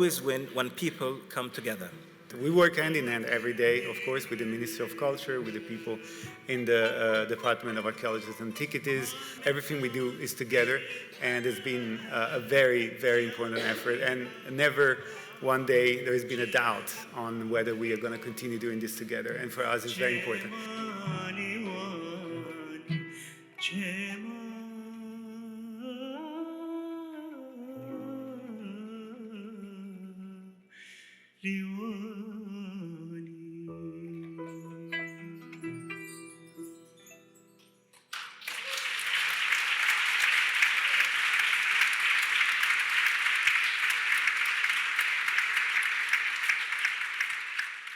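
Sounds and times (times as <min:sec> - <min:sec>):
audience applause: 0:02.8 - 0:20.6, 0:38.1 - 0:47.9
music with singing voice: 0:20.0 - 0:37.4.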